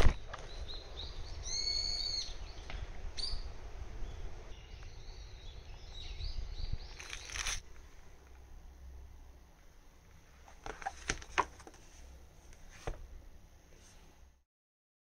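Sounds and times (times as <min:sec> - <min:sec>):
wild birds calling: 0:00.0 - 0:07.6
low background rumble: 0:00.0 - 0:14.4.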